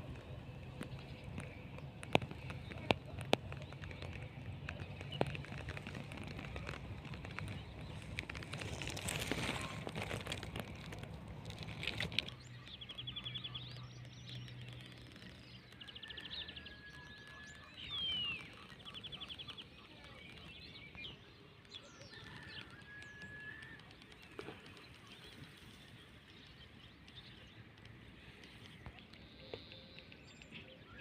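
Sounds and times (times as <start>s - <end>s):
whistled bird notes: 12.5s - 24.0s.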